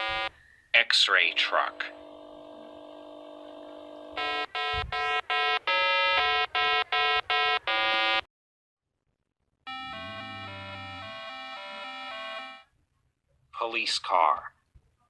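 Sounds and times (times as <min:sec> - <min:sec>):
eight-bit electronic jingle: 0:04.2 - 0:08.2, 0:09.7 - 0:12.6.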